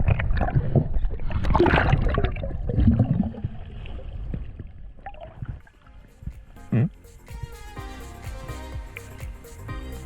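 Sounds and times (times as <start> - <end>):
water gurgling and bubbling: 0.0 - 6.3.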